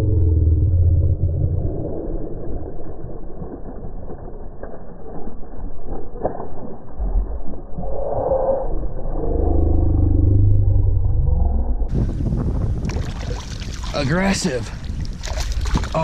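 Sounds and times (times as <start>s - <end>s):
wind rumbling on microphone: 0.0s - 16.0s
microphone handling noise: 11.9s - 13.9s.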